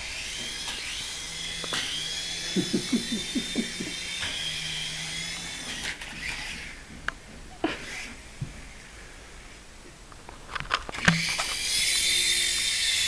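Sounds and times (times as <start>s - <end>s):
low hum: 0.0s - 5.8s
toy helicopter motor whining: 0.0s - 6.8s, 7.8s - 8.2s, 11.0s - 13.0s.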